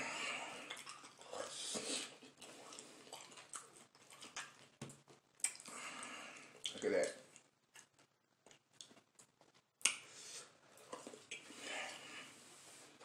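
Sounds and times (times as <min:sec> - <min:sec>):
person chewing: 0:00.1 - 0:12.1.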